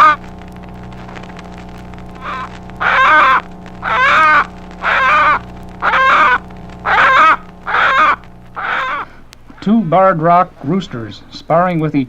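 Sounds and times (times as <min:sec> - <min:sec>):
hen squawking: 0:00.0 - 0:00.2, 0:02.1 - 0:09.3
steady low hum: 0:00.0 - 0:12.0.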